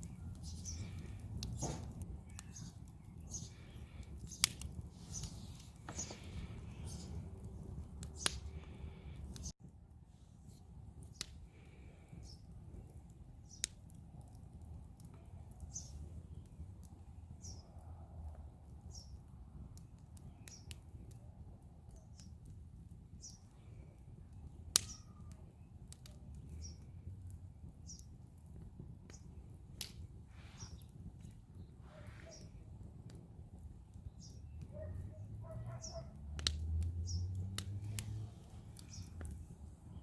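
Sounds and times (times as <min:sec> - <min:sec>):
fire crackling and popping: 0:00.0 - 0:40.0.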